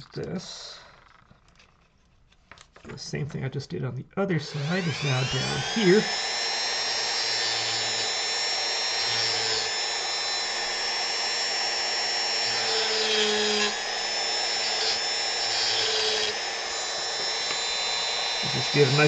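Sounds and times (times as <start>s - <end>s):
rotary tool carving wood: 4.5s - 19.0s.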